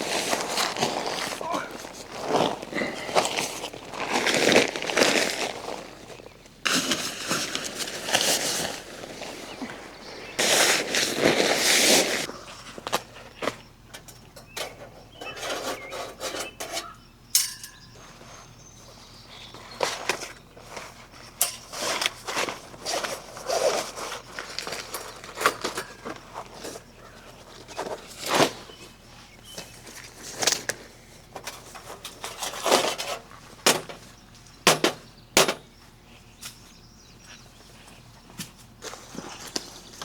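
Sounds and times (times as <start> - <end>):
rustling scrapes: 0.0 - 12.8, 15.2 - 16.9, 18.0 - 33.6.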